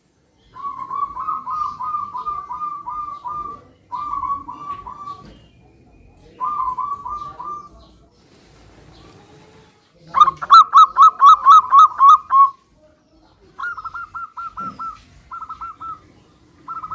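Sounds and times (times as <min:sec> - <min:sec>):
dove cooing: 0:00.5 - 0:05.4, 0:06.2 - 0:07.9, 0:10.2 - 0:12.6, 0:13.5 - 0:16.9.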